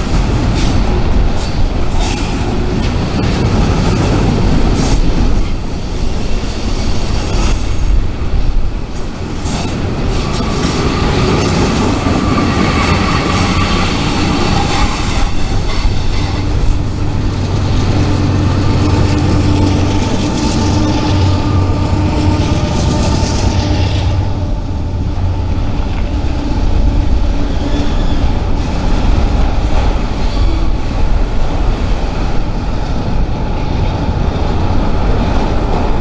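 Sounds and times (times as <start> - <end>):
wheel squeal: 0.0 - 25.4, 27.2 - 30.7
freight train rumbling on rails: 0.0 - 36.0.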